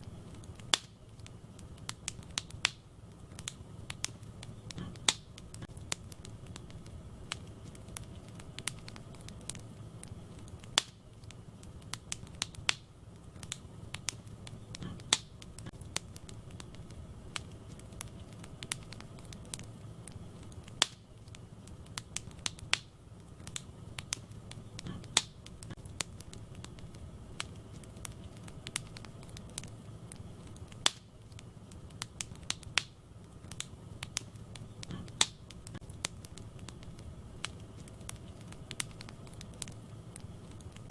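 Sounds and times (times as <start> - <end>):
burning logs crackling and popping: 0.0 - 40.9
low rumble of flames: 0.0 - 40.9.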